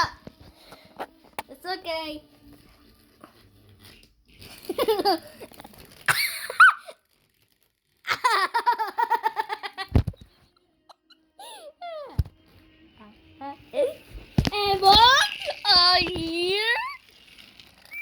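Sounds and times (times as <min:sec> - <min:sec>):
young child laughing: 0:04.7 - 0:07.0, 0:08.1 - 0:10.1.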